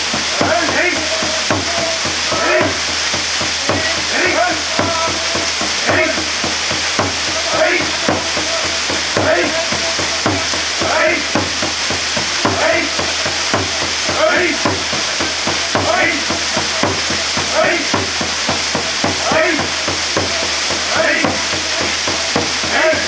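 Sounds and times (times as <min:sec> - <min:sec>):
faint rhythmic sound: 0:00.0 - 0:23.0
waterfall rushing: 0:00.0 - 0:23.0.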